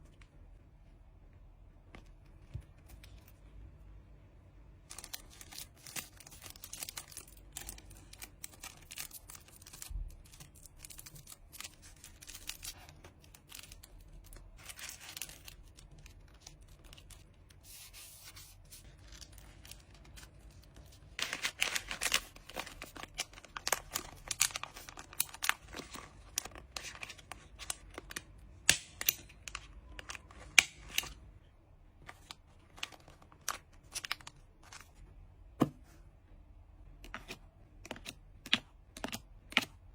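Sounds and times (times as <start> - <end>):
packaging rustling and tearing: 4.9 - 28.2.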